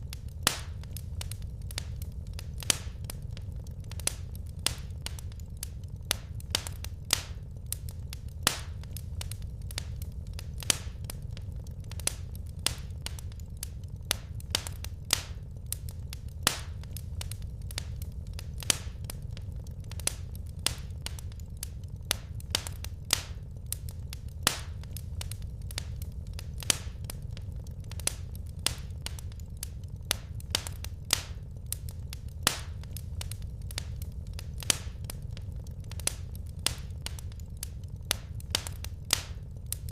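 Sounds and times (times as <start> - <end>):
low rumble: 0.0 - 39.9
wood fire crackling: 0.0 - 39.9.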